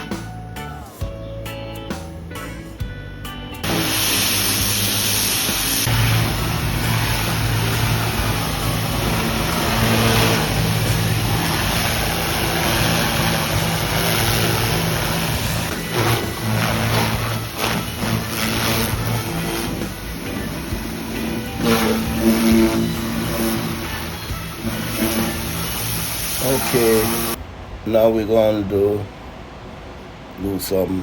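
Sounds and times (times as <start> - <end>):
pressure washer engine running: 3.6 - 27.4
water spray hissing: 3.6 - 27.4.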